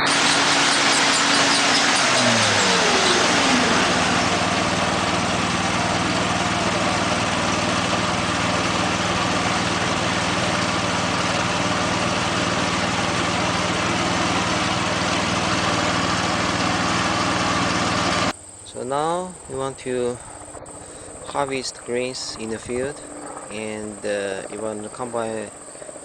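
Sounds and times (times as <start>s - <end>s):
engine idling: 0.0s - 18.4s.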